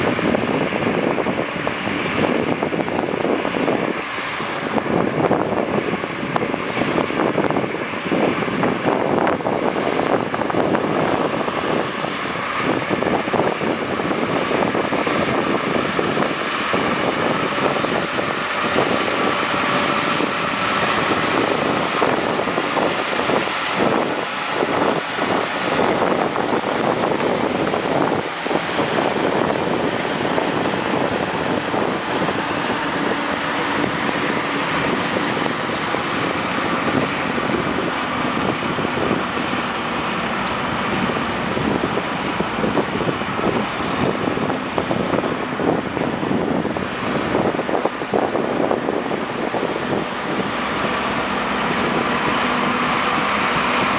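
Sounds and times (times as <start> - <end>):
heavy diesel machinery running: 0.0 - 53.9
thin high whine: 17.1 - 43.6, 48.6 - 53.9.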